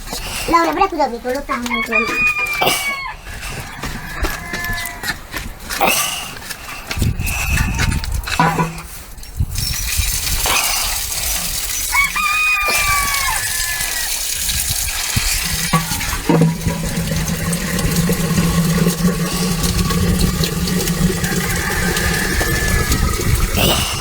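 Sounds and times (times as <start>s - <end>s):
rooster crowing: 1.5s - 5.2s, 11.9s - 14.2s, 20.9s - 23.4s.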